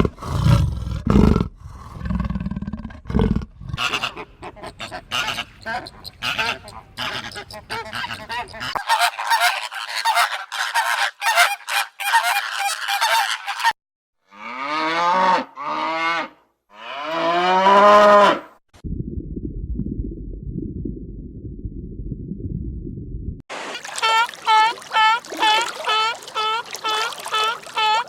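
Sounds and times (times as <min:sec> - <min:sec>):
long drawn-out goose calls: 0:03.8 - 0:13.7, 0:24.0 - 0:28.0
geese honking and cackling: 0:03.8 - 0:13.8, 0:24.0 - 0:28.0.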